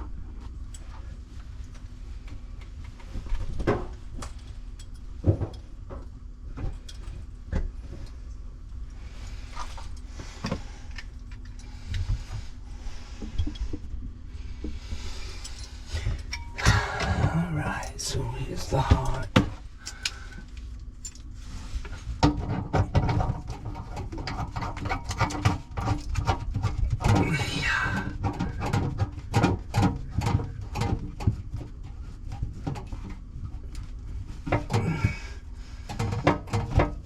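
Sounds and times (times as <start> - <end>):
low background rumble: 0.0 - 37.0
tools and parts clattering: 2.9 - 8.2, 15.1 - 21.4, 22.2 - 37.0.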